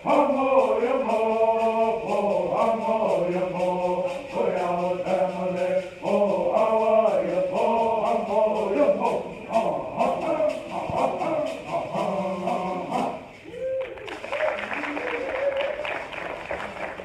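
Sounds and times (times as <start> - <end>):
fast ticking beat: 0.0 - 13.2
voices chanting together: 0.0 - 13.6.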